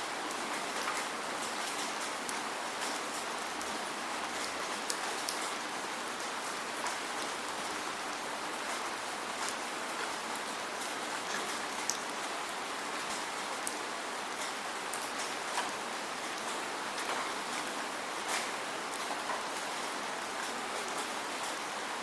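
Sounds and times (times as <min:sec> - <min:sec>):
steady rain hiss: 0:00.0 - 0:22.0
raindrop ticks: 0:11.2 - 0:21.6.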